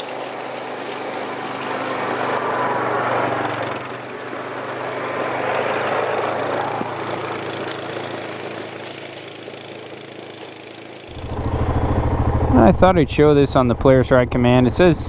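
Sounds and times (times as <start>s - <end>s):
atv engine running at low revs: 5.8s - 15.0s.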